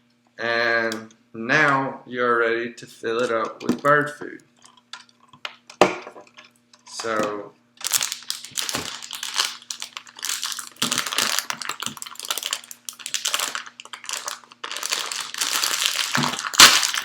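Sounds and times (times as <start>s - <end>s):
bag crinkling and rustling: 7.8s - 17.0s
loud sharp crackle: 7.8s - 17.0s.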